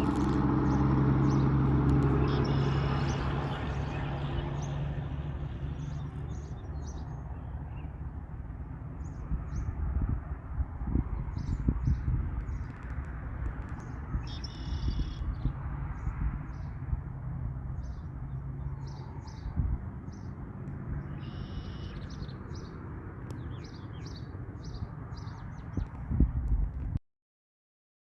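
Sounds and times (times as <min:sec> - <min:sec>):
bird trills: 0:00.0 - 0:06.6, 0:13.7 - 0:15.5, 0:21.1 - 0:22.7
songbirds chirping: 0:00.0 - 0:10.3, 0:11.0 - 0:26.3
low rumbling noise: 0:00.0 - 0:21.2.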